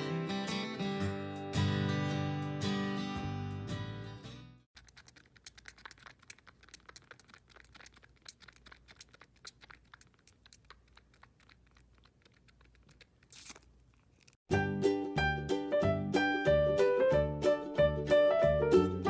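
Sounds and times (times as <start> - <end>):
faint crackling and clicking: 4.8 - 14.4.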